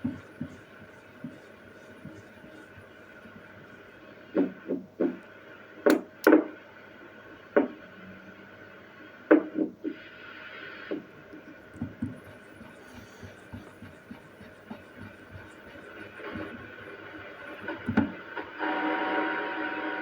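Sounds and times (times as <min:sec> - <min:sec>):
radio receiver hum and hiss: 0:00.0 - 0:05.4, 0:09.9 - 0:18.8.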